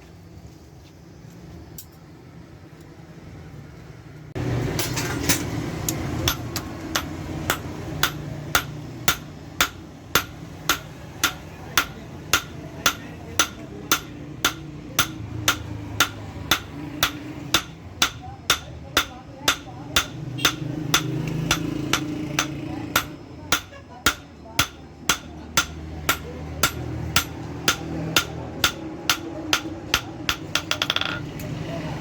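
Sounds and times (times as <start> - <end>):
hammer striking metal: 4.8 - 31.3
background din: 29.5 - 31.3.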